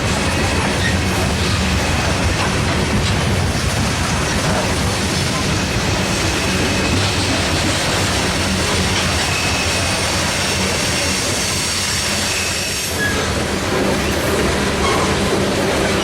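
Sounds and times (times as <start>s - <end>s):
train wheels rumbling on rail: 0.0s - 16.0s
faint wheel squeal: 9.2s - 11.0s, 12.2s - 13.3s.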